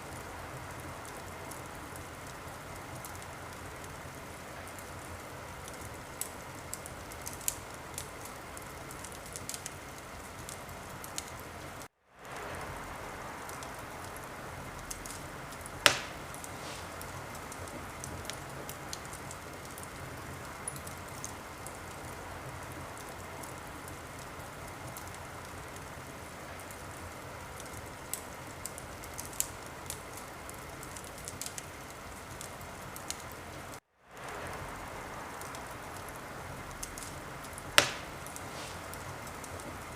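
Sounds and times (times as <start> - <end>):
wood fire crackling: 0.0 - 39.9
loud pop of fire: 14.9 - 19.1, 37.8 - 39.6.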